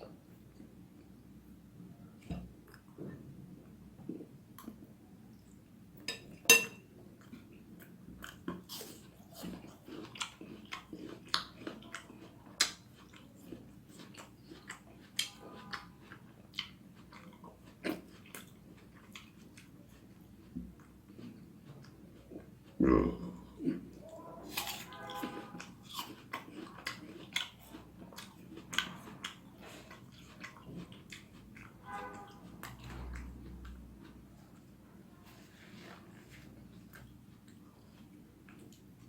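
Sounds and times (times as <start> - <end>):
person chewing noodles: 7.2 - 34.7, 35.3 - 39.0.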